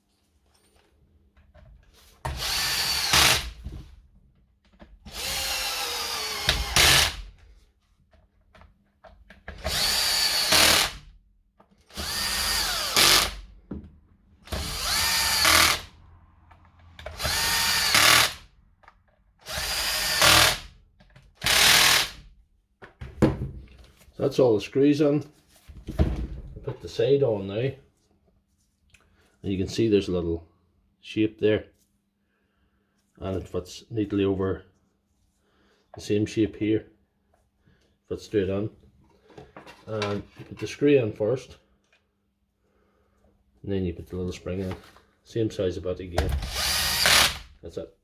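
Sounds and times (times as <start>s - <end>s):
power screwdriver whining: 2.3s - 3.6s, 5.1s - 7.3s, 9.5s - 11.0s, 11.9s - 13.5s, 14.4s - 16.0s, 16.8s - 18.5s, 19.4s - 20.7s, 21.4s - 22.2s, 46.4s - 47.5s.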